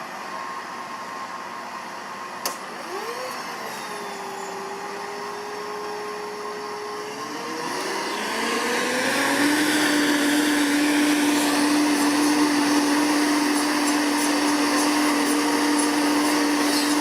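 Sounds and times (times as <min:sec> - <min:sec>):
mechanical whirring motor whine: 0:00.0 - 0:17.0
sharp click: 0:02.4 - 0:02.6.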